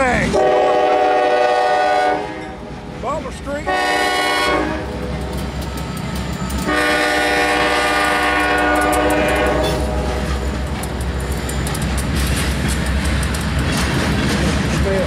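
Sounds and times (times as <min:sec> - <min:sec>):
diesel locomotive rumble: 0:00.0 - 0:15.0
locomotive air horn blast: 0:00.3 - 0:02.6, 0:03.6 - 0:05.0, 0:06.6 - 0:10.4
wheels clicking over rail joints: 0:04.9 - 0:06.9, 0:07.6 - 0:15.0.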